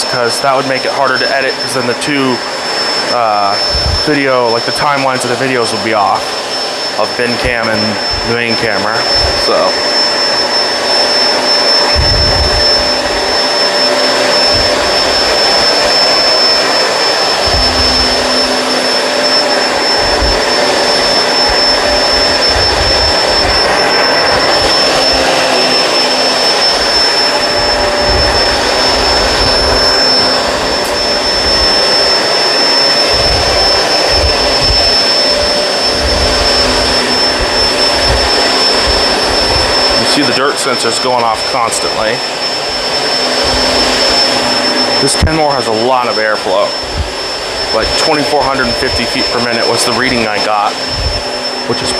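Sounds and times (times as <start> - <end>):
upright vacuum whining: 0.0 - 51.9
low thumps of vacuum on rug: 3.6 - 4.1, 11.4 - 40.0, 46.8 - 49.1, 50.7 - 51.4.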